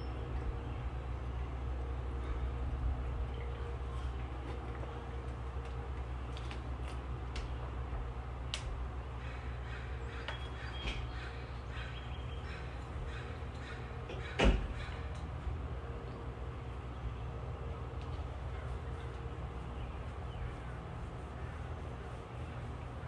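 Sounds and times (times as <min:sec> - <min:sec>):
low background rumble: 0:00.0 - 0:23.0
birds chirping faintly: 0:08.4 - 0:15.0, 0:16.0 - 0:23.0
crow cawing: 0:09.2 - 0:15.2.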